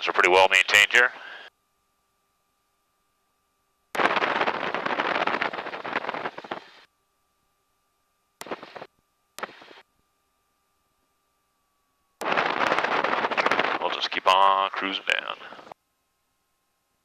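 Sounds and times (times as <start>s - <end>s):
engine and wind noise over headset: 4.2s - 6.8s.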